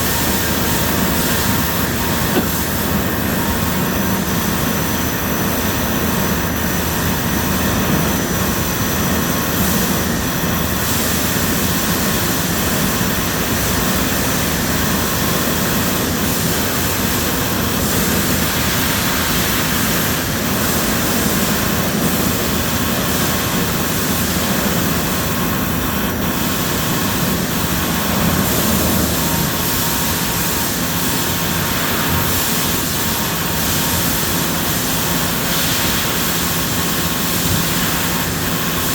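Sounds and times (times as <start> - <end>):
machine tools running: 0.0 - 38.9.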